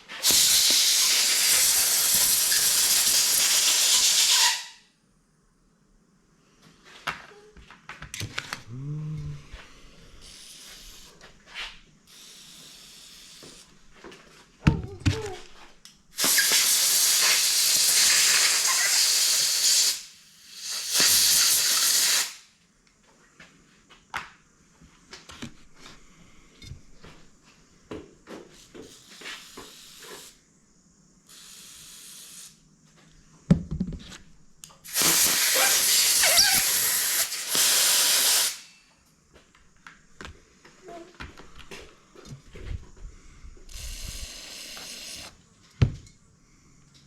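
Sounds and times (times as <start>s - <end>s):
air blow gun hissing: 0.0s - 4.8s, 10.2s - 11.2s, 12.1s - 13.8s, 16.2s - 22.5s, 28.6s - 30.4s, 31.3s - 32.6s, 34.8s - 38.8s, 43.7s - 45.4s.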